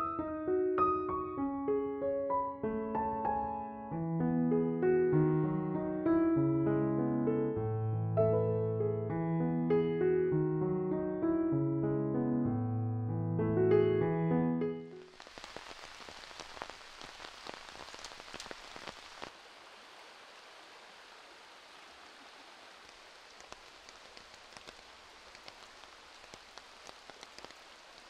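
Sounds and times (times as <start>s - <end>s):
rain and running water: 15.1s - 28.0s.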